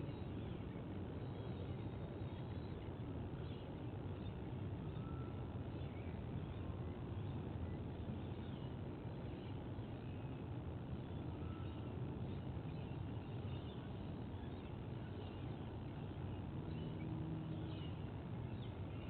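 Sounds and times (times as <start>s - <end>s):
outdoor background noise: 0.0s - 19.0s
faint high bird chirps: 3.4s - 7.3s, 11.1s - 19.0s.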